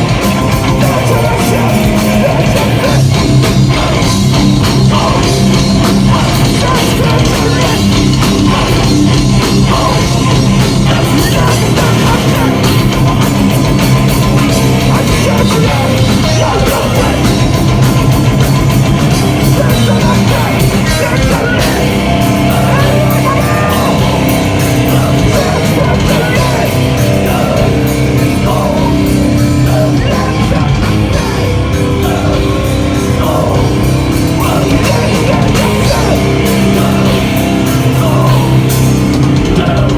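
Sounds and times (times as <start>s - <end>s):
distorted guitars: 0.0s - 39.9s
drums: 0.0s - 39.9s
person shouting vocals: 22.5s - 24.3s.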